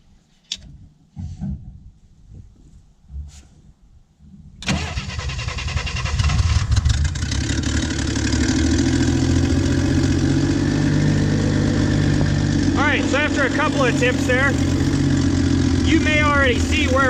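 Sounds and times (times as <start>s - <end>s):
car engine starting and running: 4.6s - 17.0s.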